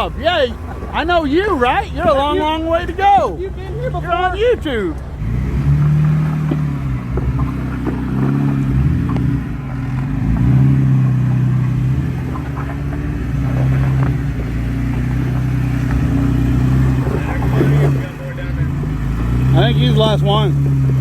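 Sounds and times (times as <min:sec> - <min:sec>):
off-road vehicle engine: 0:00.0 - 0:21.0
knocks and clatter: 0:04.9 - 0:18.2.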